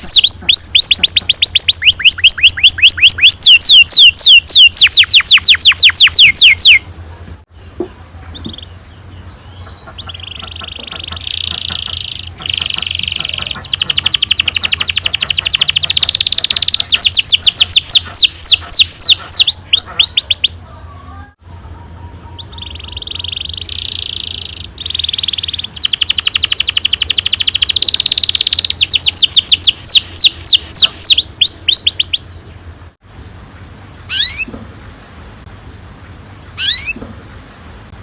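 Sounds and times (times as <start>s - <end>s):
short rising bird chirps: 0.0s - 6.8s, 9.7s - 20.6s, 22.6s - 32.4s, 34.1s - 34.5s, 36.6s - 37.0s
canary singing trills: 0.0s - 6.9s, 7.5s - 32.7s, 34.0s - 34.6s, 36.5s - 37.0s
steady low hum: 31.9s - 38.0s.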